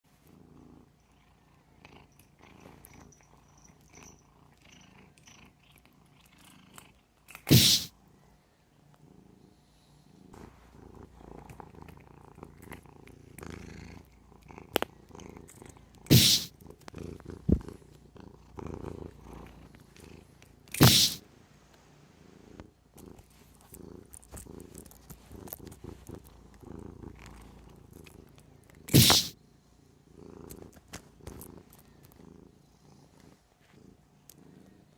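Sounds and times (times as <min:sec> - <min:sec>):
cat purring: 0:00.1 - 0:34.9
elastic strap snapping: 0:20.8 - 0:21.2, 0:28.9 - 0:29.3.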